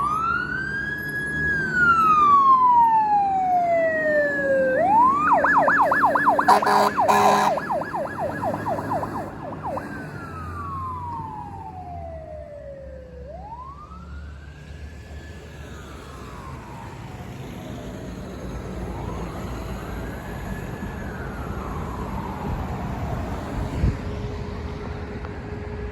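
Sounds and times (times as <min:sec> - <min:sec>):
fire truck siren wailing: 0:00.0 - 0:25.9
truck engine rumbling: 0:04.2 - 0:11.7.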